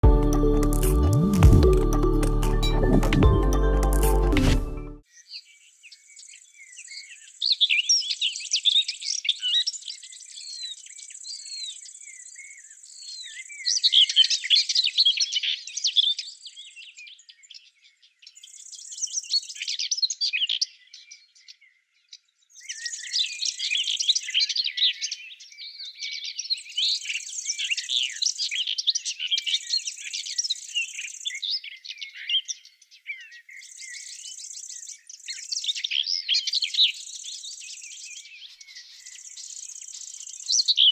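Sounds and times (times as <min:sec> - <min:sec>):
high-pitched buzzing trill: 0:00.0 - 0:05.0
songbirds chirping and singing: 0:05.0 - 0:40.9.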